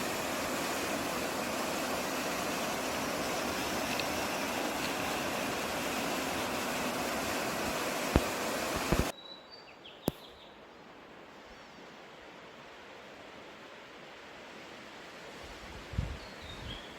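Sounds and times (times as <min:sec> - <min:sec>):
rushing wind or water: 0:00.0 - 0:09.1, 0:10.9 - 0:16.9
quiet hiss: 0:00.0 - 0:16.9
sharp clicks: 0:08.1 - 0:09.1.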